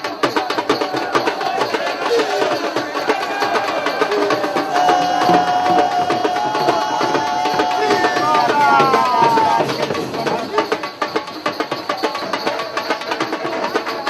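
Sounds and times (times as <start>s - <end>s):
fast clicking drumming: 0.0s - 14.0s
long held high note: 3.2s - 10.0s.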